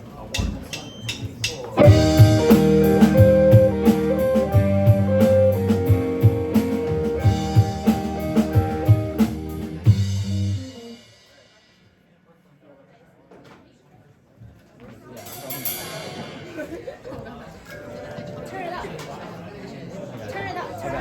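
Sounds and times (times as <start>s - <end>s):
rock band playing: 1.8s - 11.4s.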